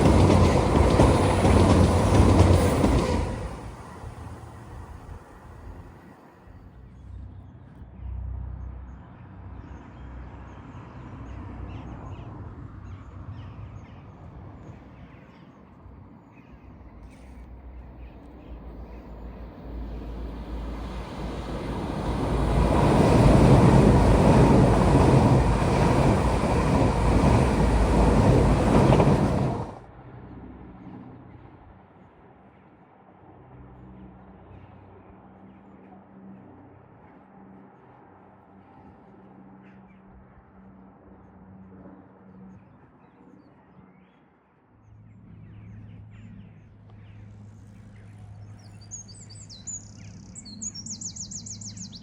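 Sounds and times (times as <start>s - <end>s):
train passing at speed: 0.0s - 7.2s, 15.8s - 30.8s, 47.3s - 52.0s.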